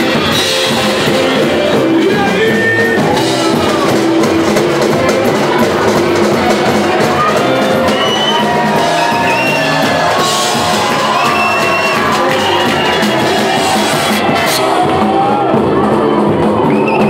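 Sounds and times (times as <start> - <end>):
crowd shouting and whooping: 0.0 - 17.0
live band playing samba: 0.0 - 17.0.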